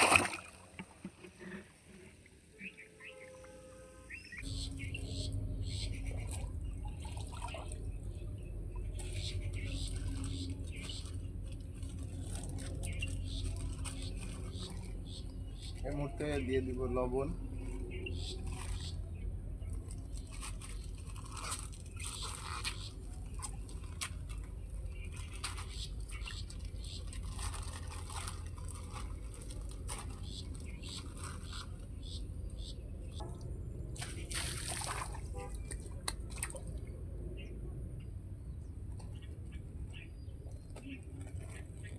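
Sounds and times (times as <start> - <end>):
loud splash: 0.0 - 0.7, 34.1 - 35.7
small splashes and crunches: 0.0 - 1.3, 19.7 - 31.8, 33.4 - 37.0.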